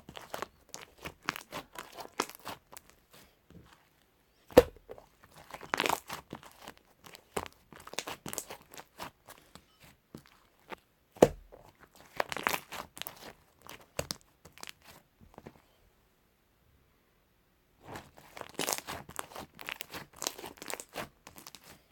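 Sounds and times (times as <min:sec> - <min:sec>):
slime squishing and popping: 0:00.1 - 0:03.0, 0:04.5 - 0:09.1, 0:11.1 - 0:15.0, 0:17.9 - 0:21.7.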